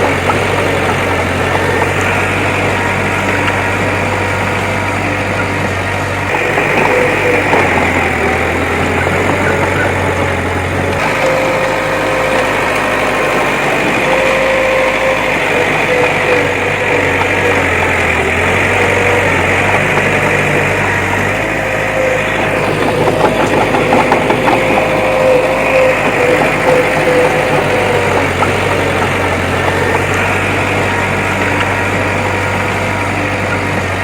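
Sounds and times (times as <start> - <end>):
clattering: 0.0 - 34.0
heavy machinery diesel engine running: 0.0 - 34.0.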